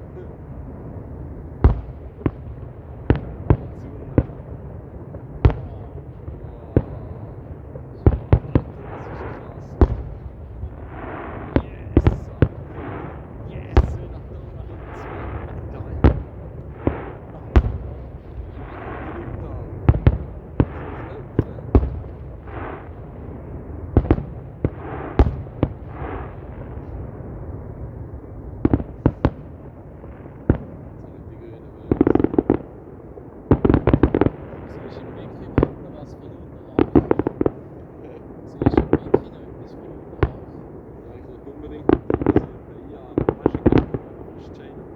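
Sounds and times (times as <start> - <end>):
low rumble: 0.0 - 33.4
fireworks exploding: 0.0 - 44.9.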